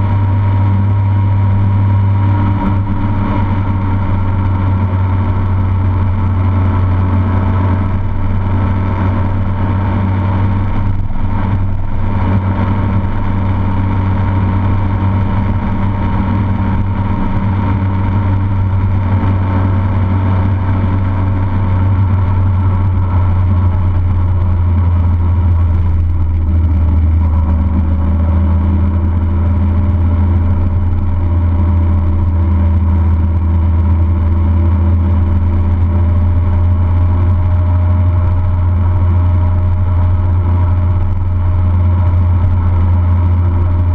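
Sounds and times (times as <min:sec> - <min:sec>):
vehicle engine droning: 0:00.0 - 0:43.9.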